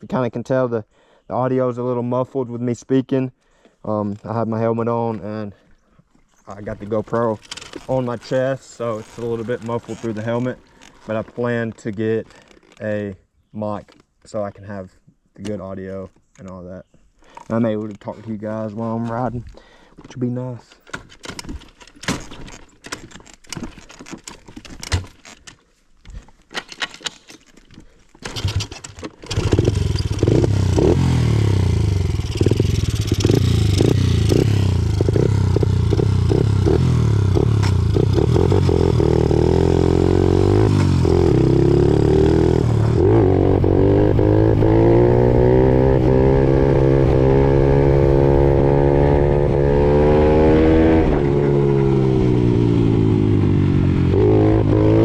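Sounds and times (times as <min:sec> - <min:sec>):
clicks knocks and scraping: 0:06.7 - 0:12.9, 0:20.0 - 0:30.4
dirt bike engine running: 0:29.3 - 0:55.0.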